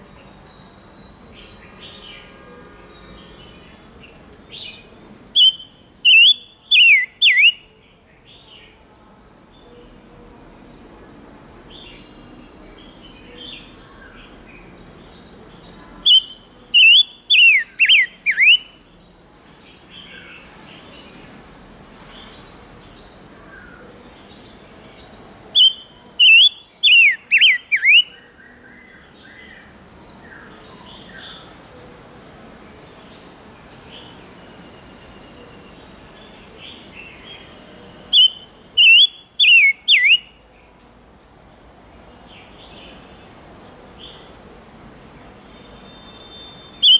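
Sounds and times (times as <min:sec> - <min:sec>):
quiet bird chirping: 0:00.0 - 0:40.8, 0:45.0 - 0:46.9
bird whistling downward notes: 0:05.4 - 0:07.6, 0:38.1 - 0:40.2, 0:45.9 - 0:46.9.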